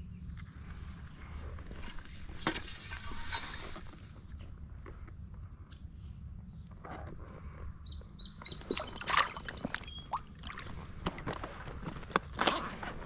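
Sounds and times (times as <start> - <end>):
small bird chirping: 7.8 - 10.2.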